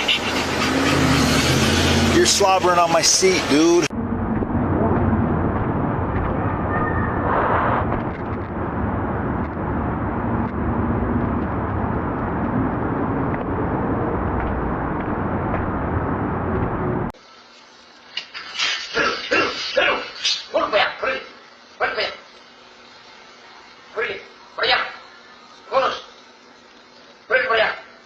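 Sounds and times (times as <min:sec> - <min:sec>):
low rumble of noise: 0:02.0 - 0:17.2.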